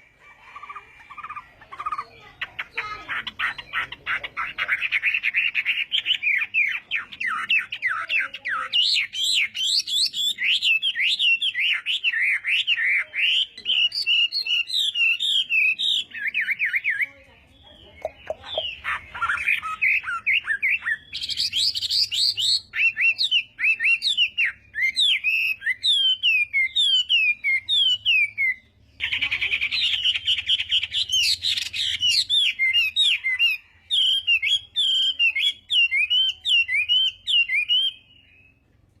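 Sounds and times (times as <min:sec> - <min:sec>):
bird singing whistles: 0:18.6 - 0:28.7, 0:29.6 - 0:38.6.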